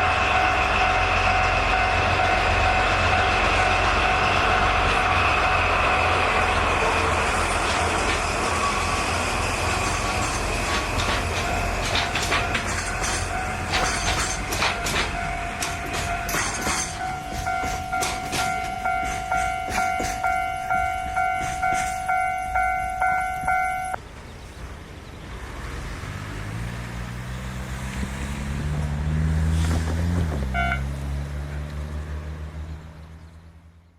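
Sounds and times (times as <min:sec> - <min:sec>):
high train horn toot: 0:00.0 - 0:06.1, 0:30.5 - 0:31.6
rail wheels clacking: 0:00.0 - 0:24.0
diesel locomotive engine: 0:00.0 - 0:33.9
warning bell ringing: 0:09.7 - 0:24.0.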